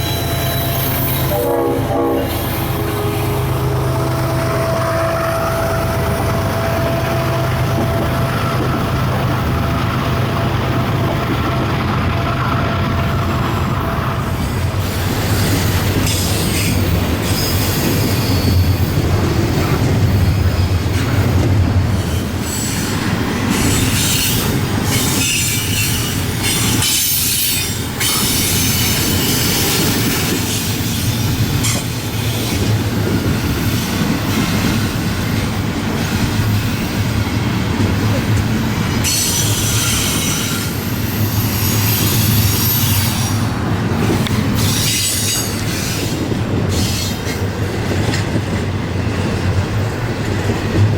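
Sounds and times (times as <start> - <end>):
metallic screeching noise: 0.0 - 1.6
freight train wheels rumbling: 0.0 - 50.9.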